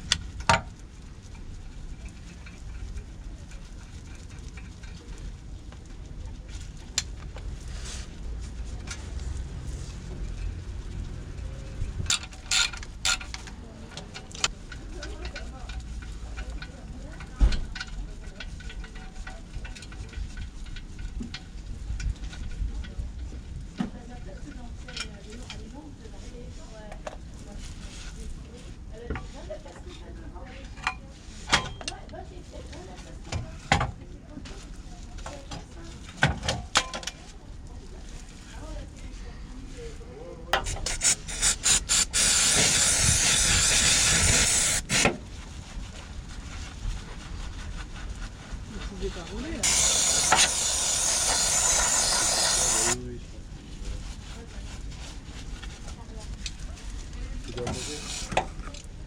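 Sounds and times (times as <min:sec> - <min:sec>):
pressurised jet hissing: 0:40.6 - 0:45.1, 0:49.6 - 0:53.0.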